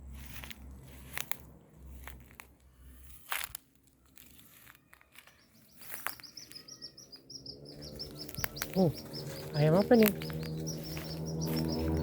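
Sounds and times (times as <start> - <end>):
dry vegetation rustling: 0.0 - 12.0
high thin peeps: 5.3 - 12.0.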